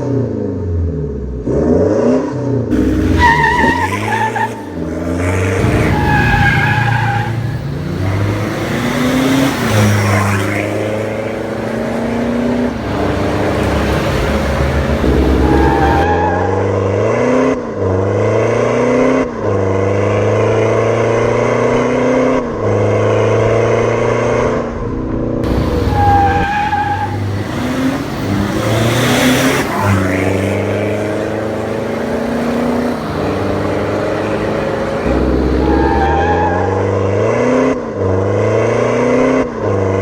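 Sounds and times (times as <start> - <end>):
car engine revving: 1.4 - 16.1, 25.4 - 40.0.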